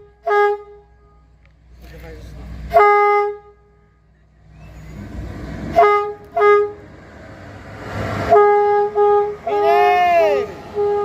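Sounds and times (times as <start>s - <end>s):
locomotive horn blasts: 0.0s - 1.3s, 2.6s - 4.0s, 5.6s - 6.9s, 8.2s - 11.0s
low rumble: 3.8s - 9.6s.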